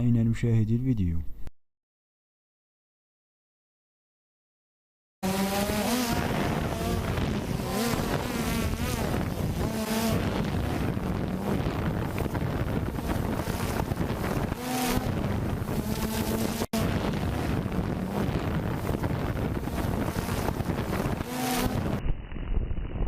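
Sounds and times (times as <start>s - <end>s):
drone propellers buzzing: 5.2s - 23.0s
wind noise on microphone: 5.2s - 23.0s.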